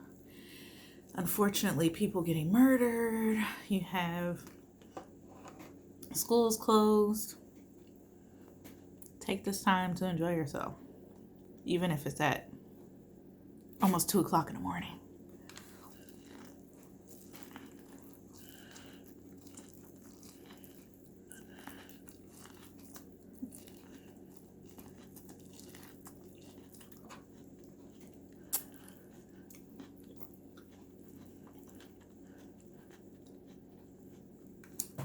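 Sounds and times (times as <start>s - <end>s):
person chewing food: 15.2s - 35.0s.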